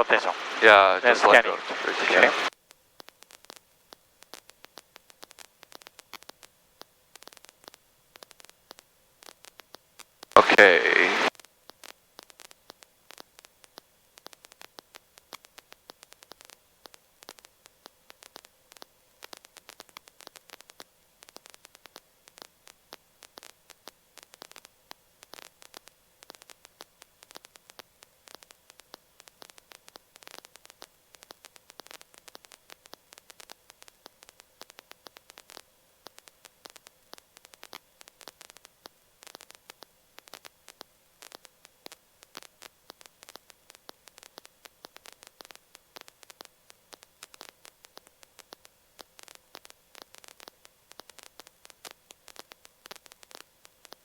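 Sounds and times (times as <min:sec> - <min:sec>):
faint steady hum: 0:00.0 - 0:02.5, 0:10.4 - 0:11.3
crackling static clicks: 0:00.0 - 0:54.0.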